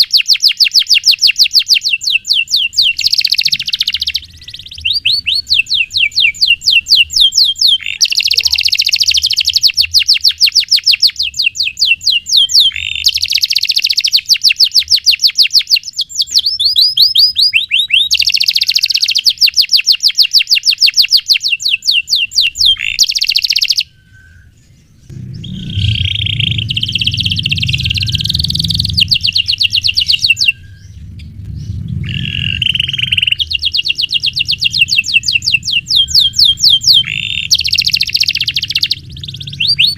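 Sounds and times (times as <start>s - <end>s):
canary singing trills: 0.0s - 39.9s
low rumble: 24.1s - 39.9s.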